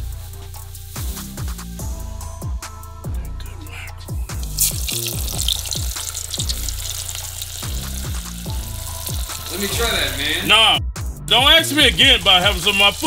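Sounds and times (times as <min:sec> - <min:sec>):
hip-hop music with deep bass: 0:00.0 - 0:13.0
fish frying in hot oil: 0:04.4 - 0:10.3, 0:12.2 - 0:13.0.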